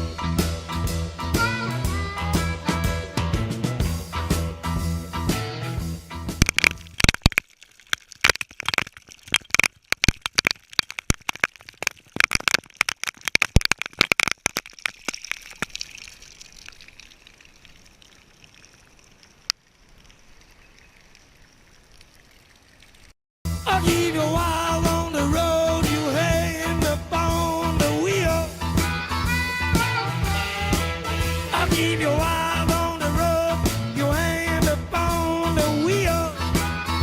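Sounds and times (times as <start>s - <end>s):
irregular crackling and popping: 6.1s - 23.2s.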